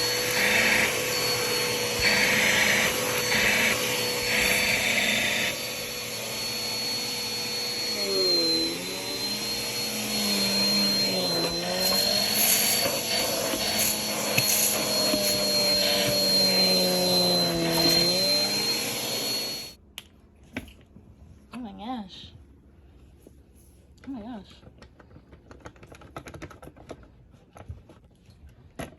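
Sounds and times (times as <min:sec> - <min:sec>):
vacuum cleaner whining: 0:00.0 - 0:19.8.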